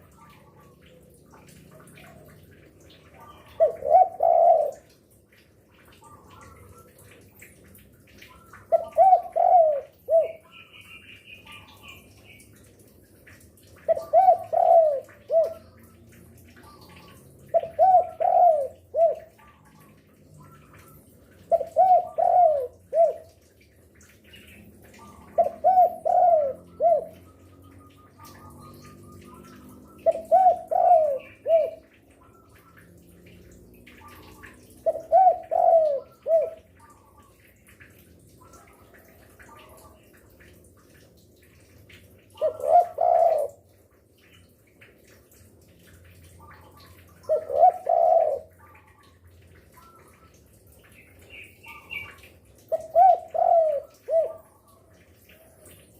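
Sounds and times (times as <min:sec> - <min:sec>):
dove cooing: 0:00.3 - 0:05.0, 0:08.4 - 0:10.7, 0:13.8 - 0:16.0, 0:16.6 - 0:23.4, 0:24.8 - 0:28.6, 0:29.2 - 0:32.0, 0:33.9 - 0:37.4, 0:42.4 - 0:43.6, 0:46.5 - 0:49.1, 0:51.7 - 0:54.8.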